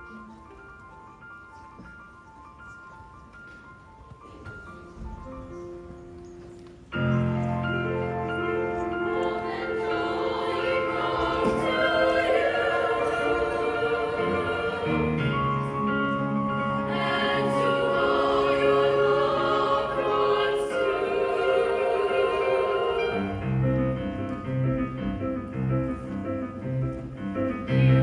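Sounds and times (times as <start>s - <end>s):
choir singing: 7.0s - 24.2s.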